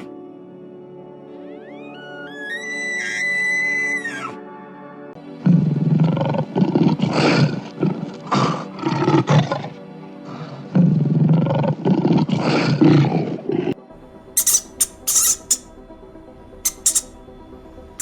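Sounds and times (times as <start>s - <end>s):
big cat roaring: 5.4s - 13.8s.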